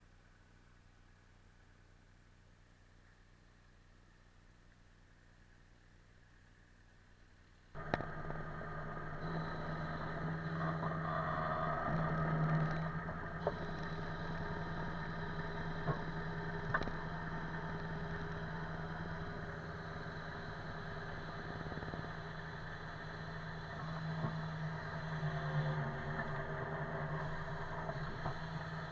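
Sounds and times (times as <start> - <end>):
engine running steadily: 7.8 - 28.9.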